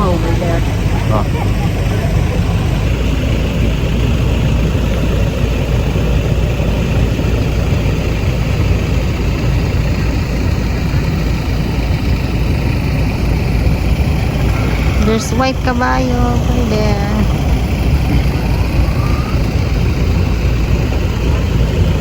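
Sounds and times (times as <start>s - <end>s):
loud low rumble: 0.0s - 22.0s
rough noisy haze: 7.1s - 22.0s.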